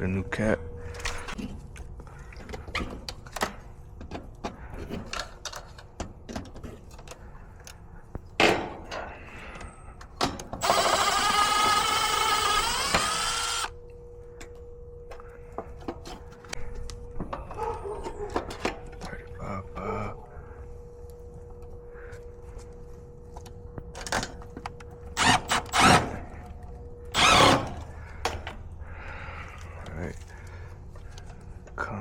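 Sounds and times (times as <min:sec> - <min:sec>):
power drill running: 0:10.6 - 0:13.8, 0:25.2 - 0:26.3, 0:27.1 - 0:28.0.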